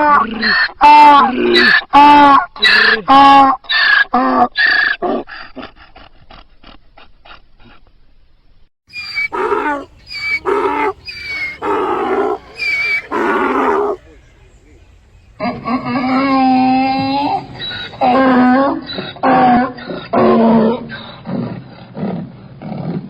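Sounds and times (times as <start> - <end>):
donkey braying: 8.9 - 21.8.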